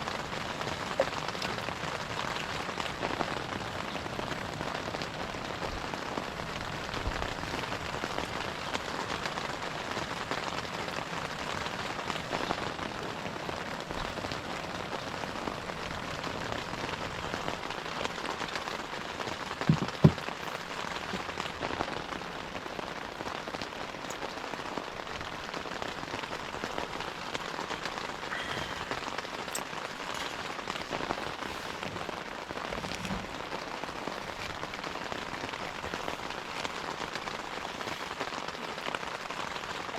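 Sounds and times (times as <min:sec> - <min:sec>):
rain falling: 0:00.0 - 0:39.9
sharp knocks: 0:19.7 - 0:20.3.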